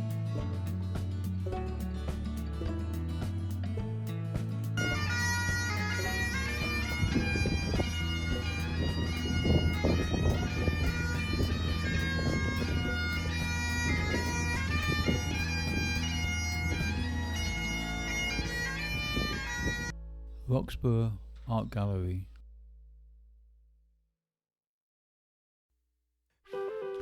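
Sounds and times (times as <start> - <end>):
bagpipe melody with drones: 4.8 - 20.0.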